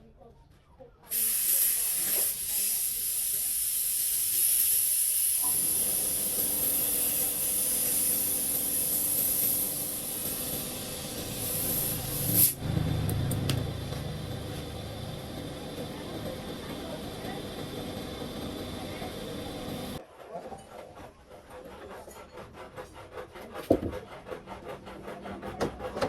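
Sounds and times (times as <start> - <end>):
loud hiss of air or spray: 1.1 - 12.7
low mechanical rumble: 7.9 - 20.0.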